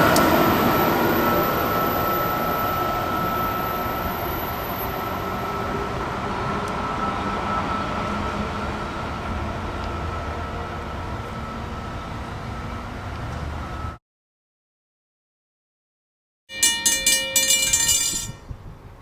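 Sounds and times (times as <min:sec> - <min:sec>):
train rumble and rail noise: 0:00.0 - 0:14.0, 0:16.5 - 0:19.0
thin high tone: 0:16.5 - 0:18.5.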